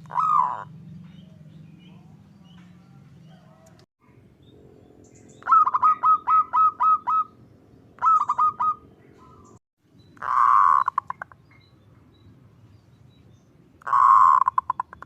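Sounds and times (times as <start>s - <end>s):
dove cooing: 0.0s - 3.8s, 5.4s - 7.4s, 8.0s - 9.6s, 10.2s - 11.2s, 13.8s - 15.0s.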